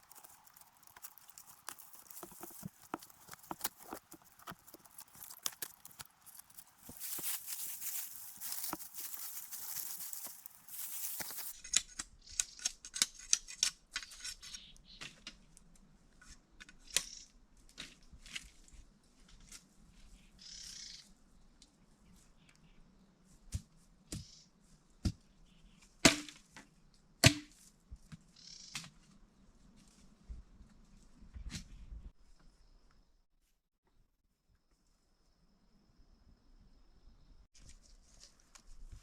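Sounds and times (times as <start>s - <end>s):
rustling: 0.0s - 11.6s.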